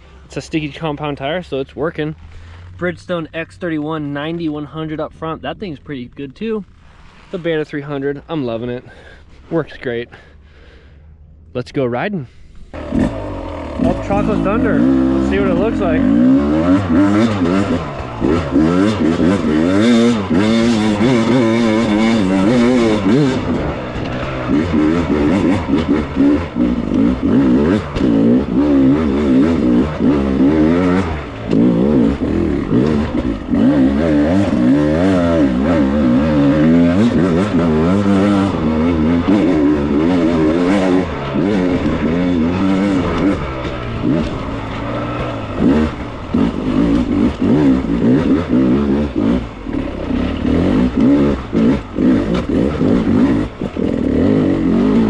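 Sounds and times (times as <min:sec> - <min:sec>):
dirt bike engine revving: 0:12.7 - 0:55.0.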